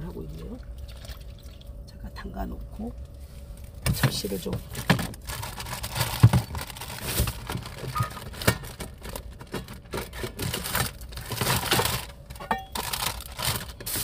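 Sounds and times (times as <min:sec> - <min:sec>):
plates and kitchenware clinking: 0:12.4 - 0:12.8.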